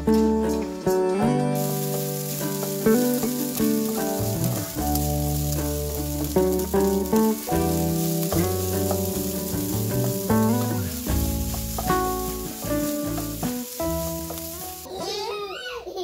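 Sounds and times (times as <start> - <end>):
rice sizzling in a wok: 0.0 - 0.9, 1.6 - 15.0
background music: 0.0 - 14.9
wooden spatula scraping: 1.6 - 15.0.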